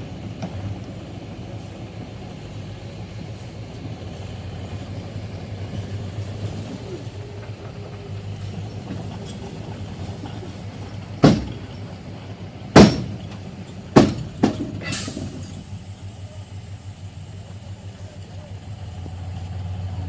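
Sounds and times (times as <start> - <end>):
diesel engine idling: 0.0 - 20.0
loud bangs: 11.2 - 11.9, 12.7 - 15.3.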